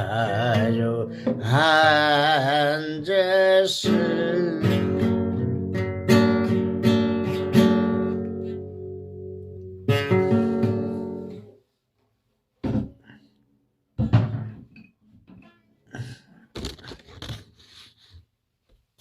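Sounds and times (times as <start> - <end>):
person singing with vibrato: 0.0 - 5.2
acoustic guitar strumming: 0.0 - 11.5.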